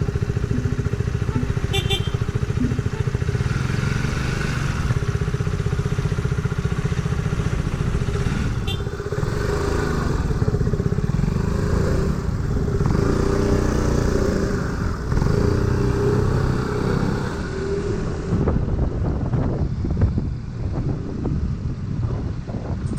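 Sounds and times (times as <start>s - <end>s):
scooter engine running: 0.0s - 16.3s.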